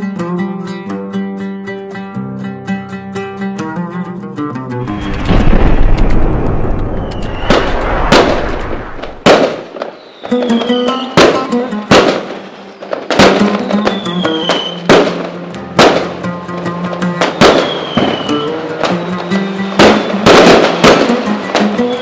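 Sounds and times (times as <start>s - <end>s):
music with held notes: 0.0s - 5.3s, 10.3s - 22.0s
fireworks bursting with echoing bangs: 5.0s - 22.0s.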